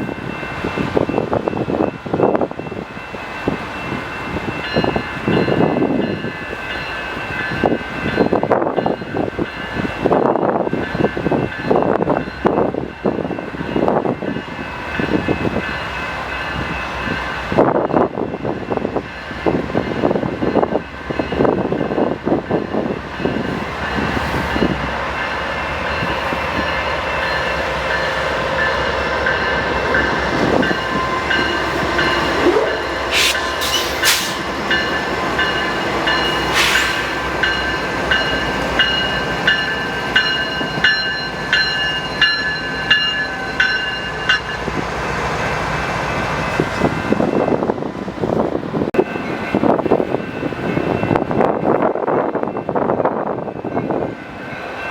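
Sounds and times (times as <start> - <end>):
regular rail clacks: 0.0 - 54.9
train passing: 0.0 - 54.9.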